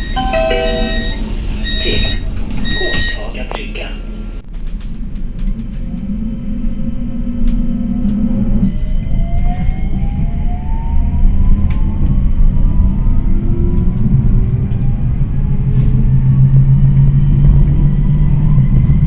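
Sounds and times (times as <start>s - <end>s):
tram motor whine: 0.0s - 4.4s
tram rumbling on rails: 0.0s - 19.0s.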